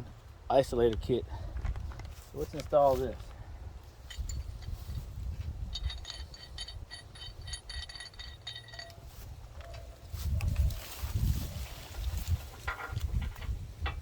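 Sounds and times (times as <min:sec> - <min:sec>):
metallic clinking of shackle: 0:04.0 - 0:09.8.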